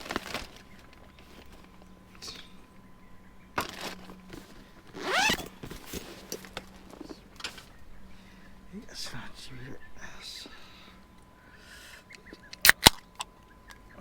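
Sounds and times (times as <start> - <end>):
small knocks and rustles: 0.0 - 2.5, 3.5 - 7.8
sharp handling click: 12.4 - 13.8.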